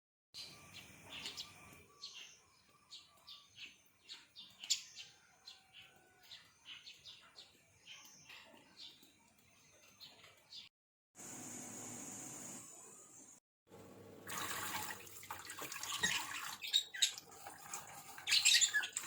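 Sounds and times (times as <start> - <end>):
faint birds chirping: 0.4 - 10.7, 15.8 - 19.0.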